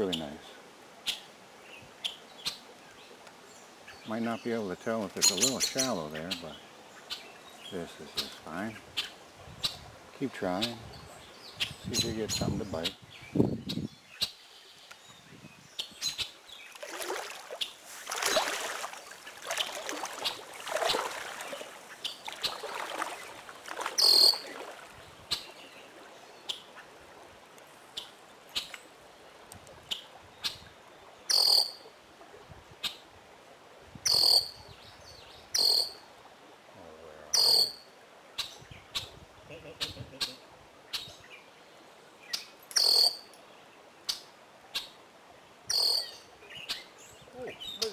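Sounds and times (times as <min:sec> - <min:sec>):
blackbirds calling: 0:00.0 - 0:16.9, 0:17.5 - 0:27.0, 0:31.3 - 0:31.8, 0:34.1 - 0:36.0, 0:37.3 - 0:41.5, 0:42.2 - 0:43.4, 0:45.7 - 0:47.9.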